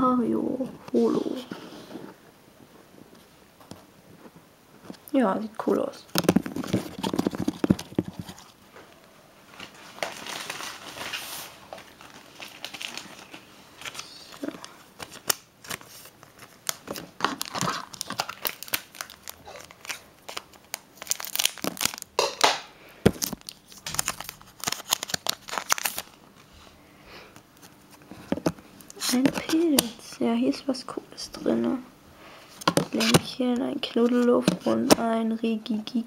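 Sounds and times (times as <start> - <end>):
foil wrapper tearing and crinkling: 9.5 - 26.2.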